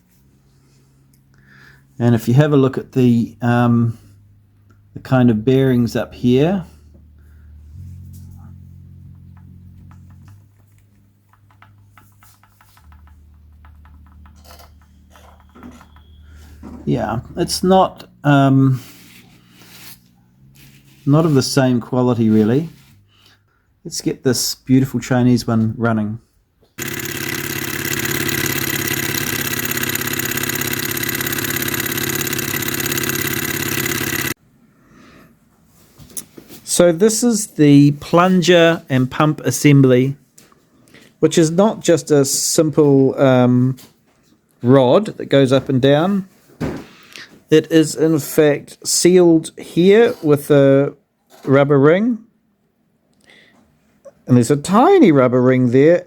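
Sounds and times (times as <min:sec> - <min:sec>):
low steady hum: 0:03.2 - 0:12.2
hot-air engine running: 0:07.0 - 0:16.7, 0:26.8 - 0:34.4.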